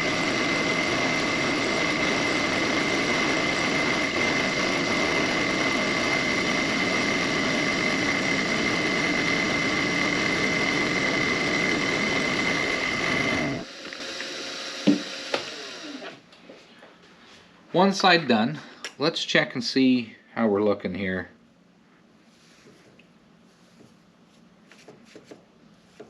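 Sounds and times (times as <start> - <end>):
machine tool whining: 0.0 - 16.2.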